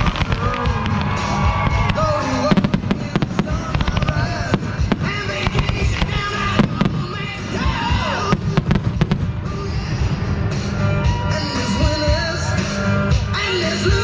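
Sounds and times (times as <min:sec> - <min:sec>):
fireworks bangs and crackles: 0:00.0 - 0:11.2
loud music: 0:00.0 - 0:14.0.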